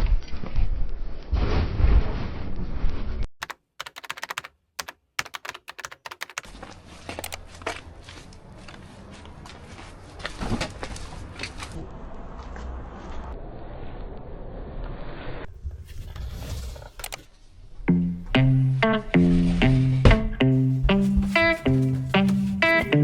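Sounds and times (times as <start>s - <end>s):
sharp clicks: 3.4s - 6.4s, 17.0s - 17.2s.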